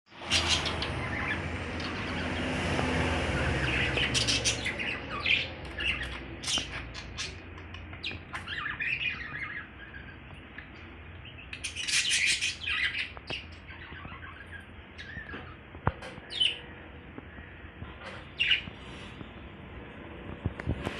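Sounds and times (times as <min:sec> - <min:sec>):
lovebirds chirping and squawking: 0:00.1 - 0:19.4
rushing noise with low hum: 0:00.2 - 0:08.4, 0:14.8 - 0:20.9.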